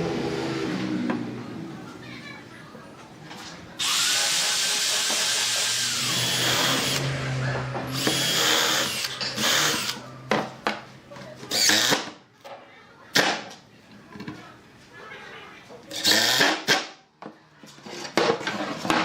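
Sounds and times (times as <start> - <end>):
power drill running: 3.8 - 7.2, 7.9 - 10.0.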